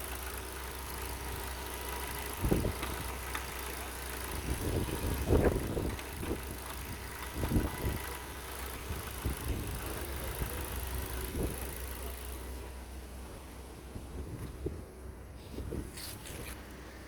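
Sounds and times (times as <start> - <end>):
engine knocks: 0.0 - 12.2
car engine idling: 0.0 - 14.1.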